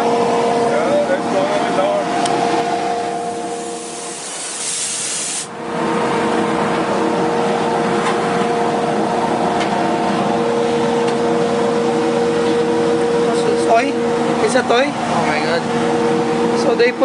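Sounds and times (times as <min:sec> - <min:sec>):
vacuum humming with rushing air: 0:00.0 - 0:17.0
compressed air hiss: 0:03.4 - 0:05.5.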